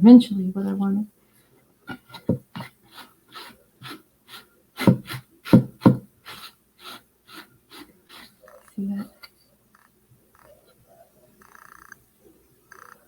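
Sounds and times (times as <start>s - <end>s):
paintbrush scrubbing on wood: 2.2s - 8.5s.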